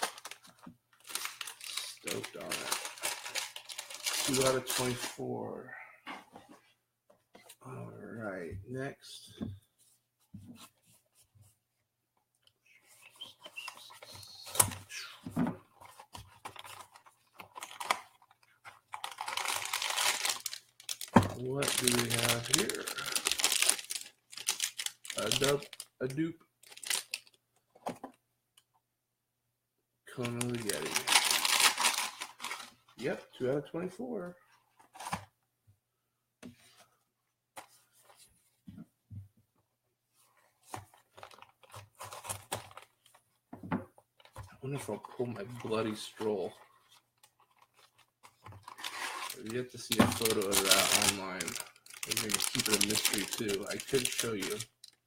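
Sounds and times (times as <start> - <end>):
packaging tearing and crinkling: 0.0 - 0.4, 1.0 - 5.1, 19.0 - 25.9, 26.6 - 27.3, 30.4 - 32.7, 48.6 - 55.0.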